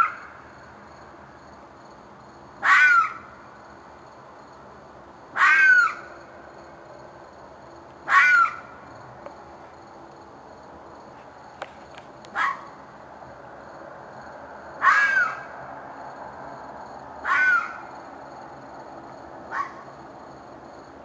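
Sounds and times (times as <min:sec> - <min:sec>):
animal screaming call: 0:02.6 - 0:03.2, 0:05.4 - 0:06.1, 0:08.1 - 0:08.7, 0:14.8 - 0:15.5, 0:17.2 - 0:17.8.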